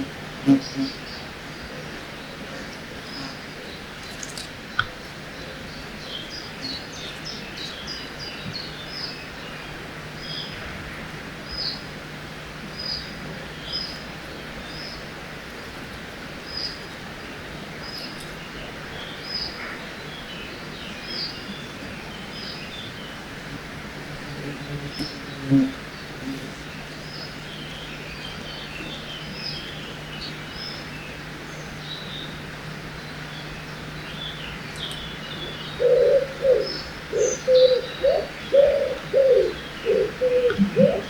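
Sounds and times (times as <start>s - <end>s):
birds calling: 0.0s - 10.6s, 24.5s - 41.0s.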